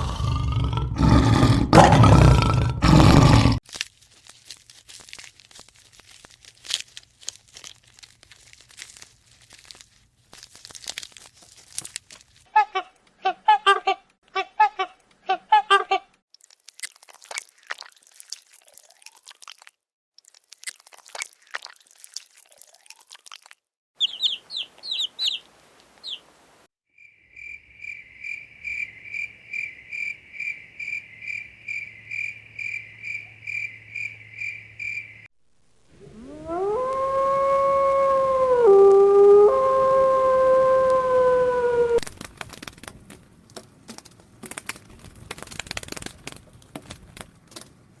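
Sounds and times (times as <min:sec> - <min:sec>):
animal chirps: 0:24.0 - 0:26.2.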